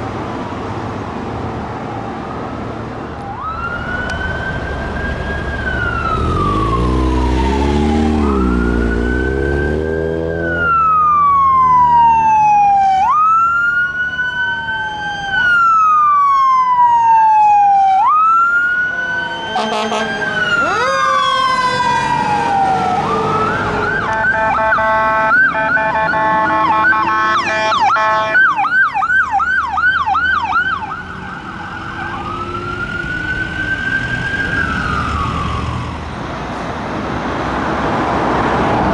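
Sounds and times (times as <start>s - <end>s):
truck engine rumbling: 0.0s - 16.2s, 18.2s - 38.9s
siren yelp: 1.8s - 36.0s
siren wailing: 1.8s - 36.1s
blaring horn: 18.8s - 28.6s.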